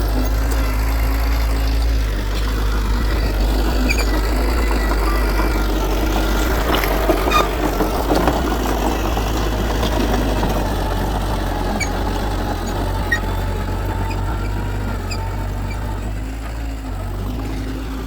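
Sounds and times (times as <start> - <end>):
heavy diesel machinery running: 0.0 - 18.0.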